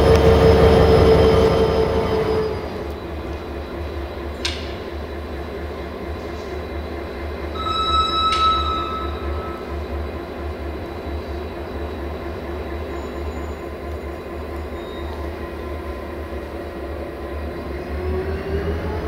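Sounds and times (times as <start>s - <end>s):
locomotive whine: 0.0s - 19.0s
train coaches rumbling on rails: 0.0s - 19.0s
thin squeal: 7.6s - 9.8s.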